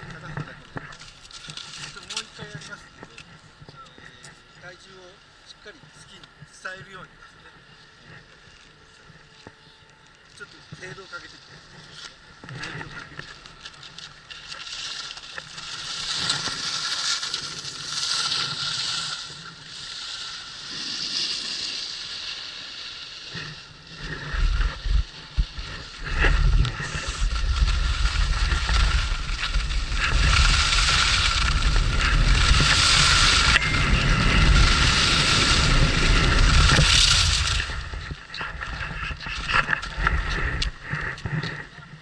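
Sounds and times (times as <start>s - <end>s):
skis scraping over snow: 0.0s - 3.2s, 10.4s - 42.0s
wind buffeting microphone: 23.8s - 42.0s.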